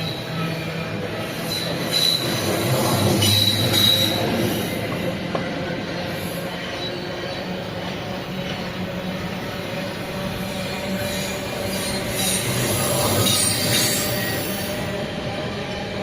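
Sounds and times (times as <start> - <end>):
high wheel squeal: 0.0 - 4.8, 10.4 - 14.9
train rolling past: 0.0 - 16.0.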